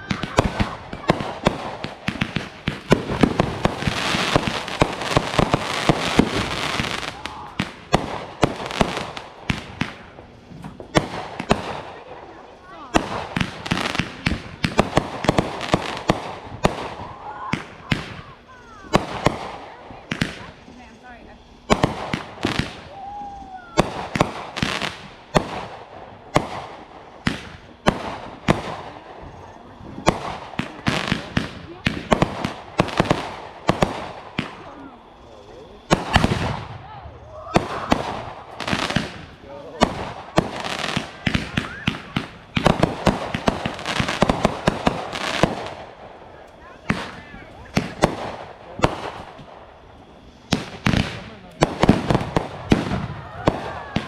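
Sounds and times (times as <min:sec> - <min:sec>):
firework bangs: 0:00.0 - 0:54.0
firework crackling: 0:00.0 - 0:54.0
rising firework whistle: 0:22.2 - 0:25.0, 0:34.4 - 0:39.2, 0:40.4 - 0:48.4, 0:51.9 - 0:54.0.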